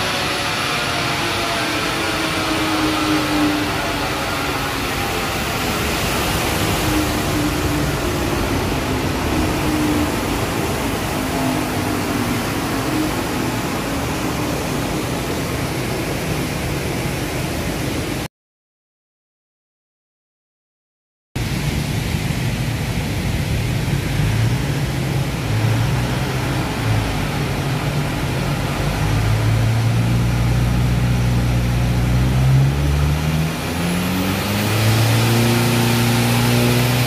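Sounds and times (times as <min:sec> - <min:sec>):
diesel engine running on dynamometer: 0:00.0 - 0:18.1, 0:22.4 - 0:37.0
loud steady rushing noise: 0:00.0 - 0:18.3, 0:21.4 - 0:37.0.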